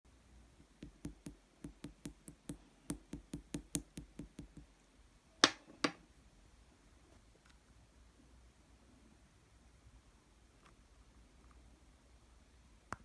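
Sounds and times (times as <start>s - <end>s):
light clicking taps on slime tub: 0.8s - 4.7s.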